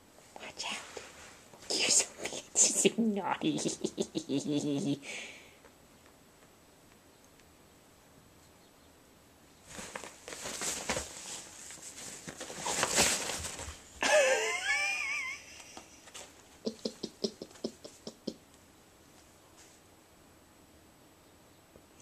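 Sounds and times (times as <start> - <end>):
pet rustling in fabric tent: 9.6 - 13.9.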